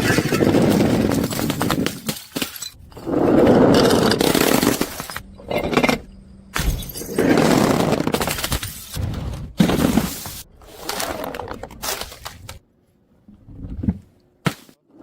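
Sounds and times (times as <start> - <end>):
crashing and breaking noises: 6.6 - 12.6.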